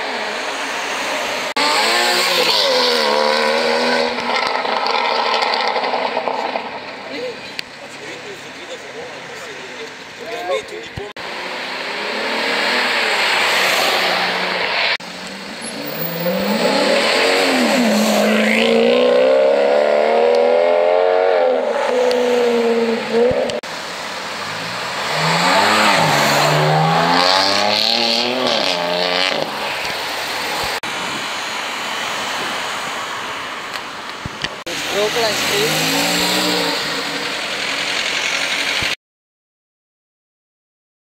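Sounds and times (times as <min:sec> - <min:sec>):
traffic noise: 0:00.0 - 0:39.0
sports car engines accelerating: 0:10.9 - 0:30.8, 0:34.6 - 0:38.9.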